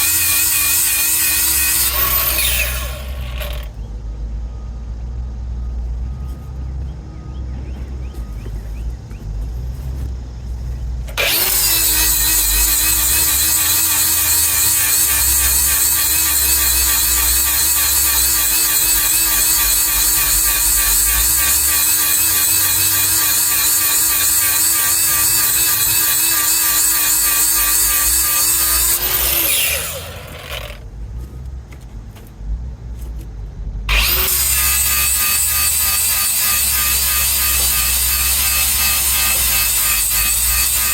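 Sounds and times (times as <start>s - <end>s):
power grinder whining: 0.0s - 3.7s, 11.1s - 30.8s, 33.9s - 40.9s.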